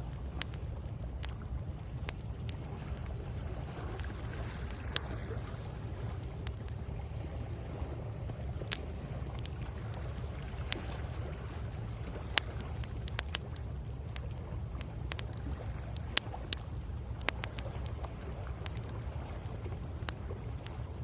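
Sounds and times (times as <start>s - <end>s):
bonfire crackling and popping: 0.0s - 21.0s
waves rumbling on shore: 0.0s - 21.0s.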